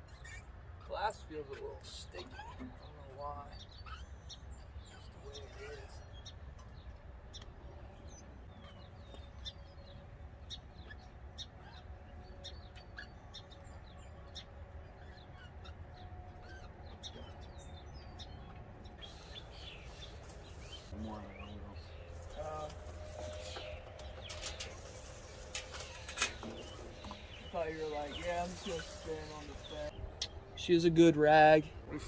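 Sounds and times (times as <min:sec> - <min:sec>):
songbirds chirping: 0:00.0 - 0:32.0.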